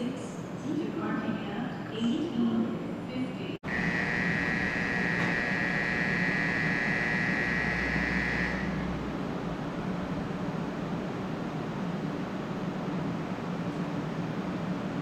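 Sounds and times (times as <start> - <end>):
deeper hum: 3.6 - 10.5
train high whine: 3.6 - 12.5.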